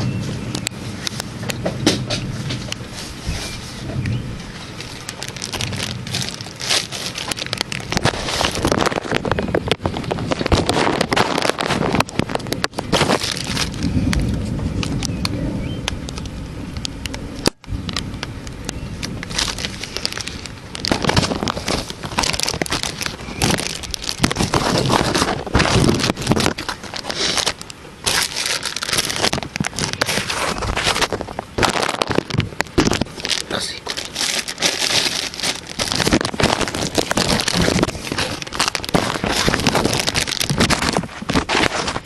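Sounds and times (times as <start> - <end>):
wind and rain on microphone: 0.0 - 42.0
low rumble of thunder: 11.8 - 18.2.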